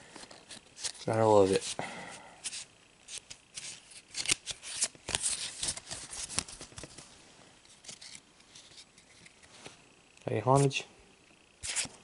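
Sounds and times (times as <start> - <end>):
trading cards rustling: 2.4 - 7.1.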